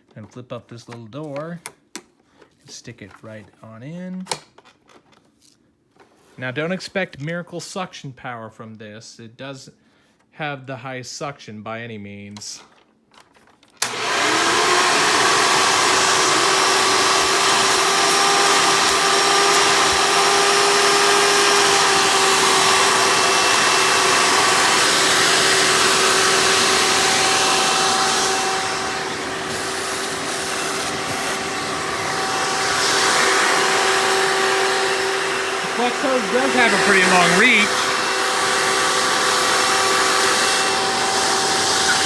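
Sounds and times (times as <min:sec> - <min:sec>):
vacuum cleaner running: 0:13.8 - 0:42.0.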